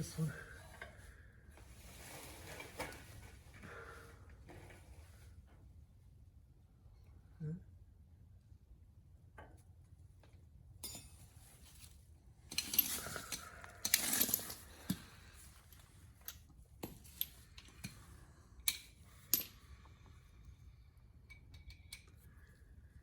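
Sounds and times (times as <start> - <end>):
metal tools clinking and rattling: 10.8 - 11.8, 12.4 - 18.0.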